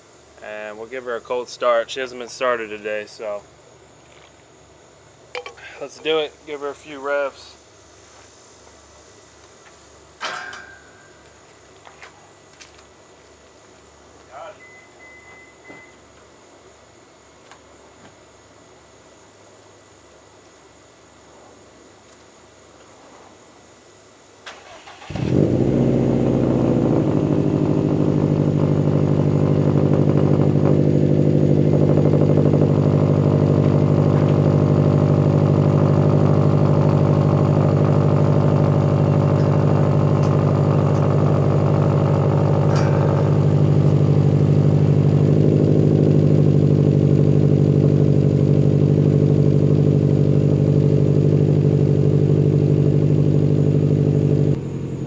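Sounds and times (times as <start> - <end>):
car engine starting and idling: 24.5 - 55.0.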